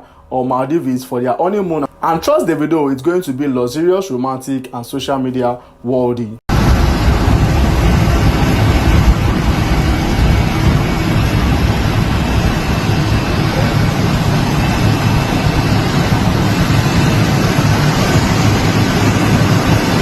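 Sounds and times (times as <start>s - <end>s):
moving vehicle rumbling: 6.5s - 20.0s.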